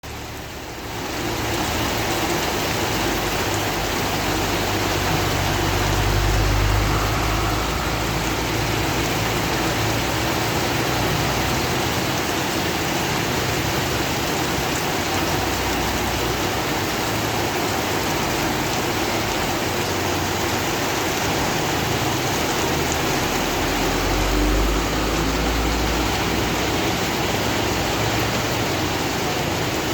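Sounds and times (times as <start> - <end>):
heavy rain: 0.0 - 29.9
low rumble: 5.4 - 10.1.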